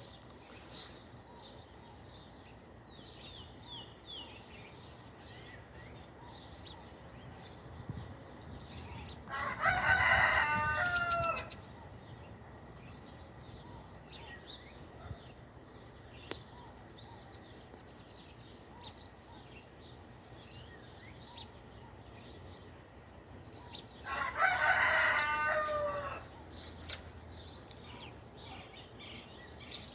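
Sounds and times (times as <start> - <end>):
rooster crowing: 9.3 - 11.6, 24.0 - 26.4
small birds chirping: 11.0 - 29.9.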